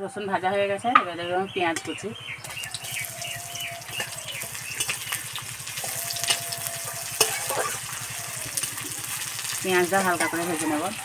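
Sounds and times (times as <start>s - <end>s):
onion sizzling in hot oil: 2.4s - 11.0s
metal spatula scraping pan: 3.9s - 11.0s.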